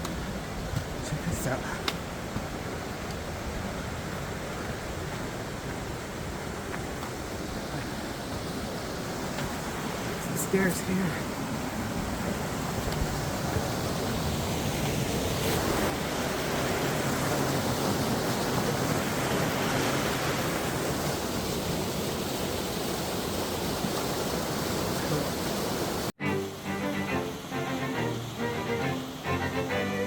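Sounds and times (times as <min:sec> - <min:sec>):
stream rushing over rocks: 0:00.0 - 0:30.0.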